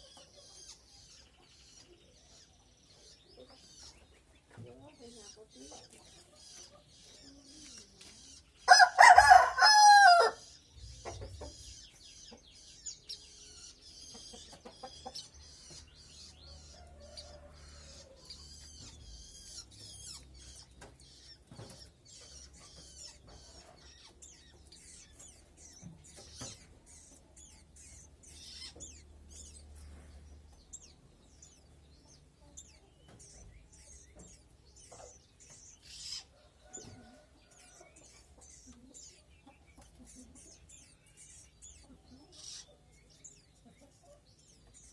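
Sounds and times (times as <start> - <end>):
small birds chirping: 0.0 - 44.9
rooster crowing: 8.7 - 10.4, 16.6 - 18.3.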